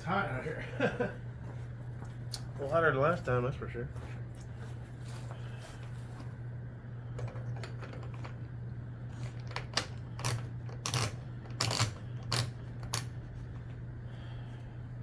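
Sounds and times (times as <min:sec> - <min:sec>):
steady low hum: 0:00.0 - 0:15.0
hard gear clicking and scraping: 0:10.1 - 0:13.1.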